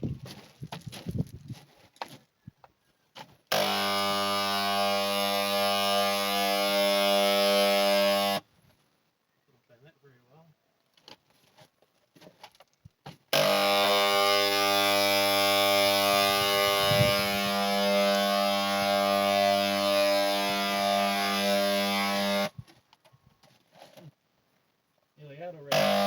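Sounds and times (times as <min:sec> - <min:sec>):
paint sprayer buzzing and hissing: 0:03.5 - 0:08.4, 0:13.3 - 0:22.6, 0:25.7 - 0:26.0.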